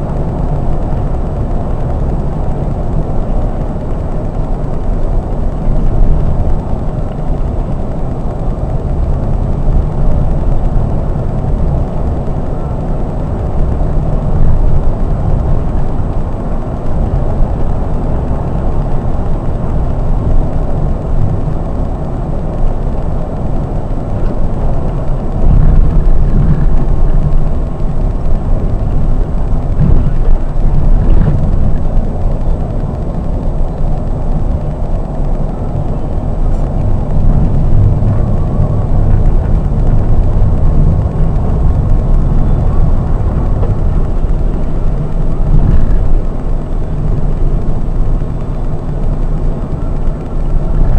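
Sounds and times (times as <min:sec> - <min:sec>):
coach engine and road rumble: 0:00.0 - 0:50.9.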